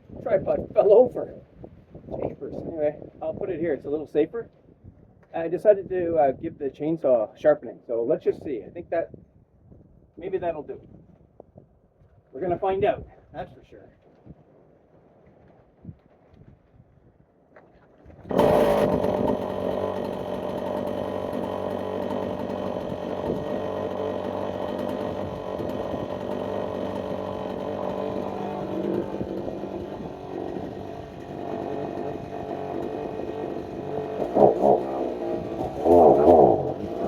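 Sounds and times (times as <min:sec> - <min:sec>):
chainsaw milling a log: 0:18.3 - 0:37.0.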